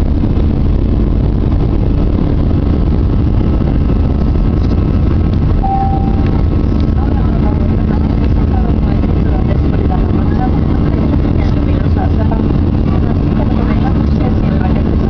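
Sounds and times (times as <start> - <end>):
jet engines rumbling in cabin: 0.0 - 15.0
brief single tone: 5.6 - 6.5.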